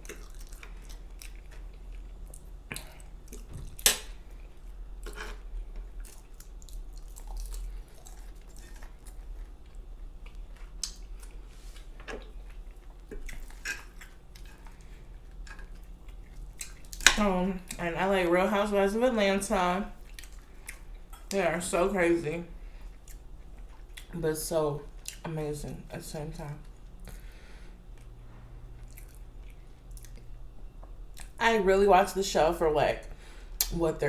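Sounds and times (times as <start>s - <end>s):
chewing and wet mouth sounds: 0.0s - 17.8s, 20.0s - 21.4s, 22.7s - 24.2s, 24.8s - 25.3s, 28.8s - 31.4s.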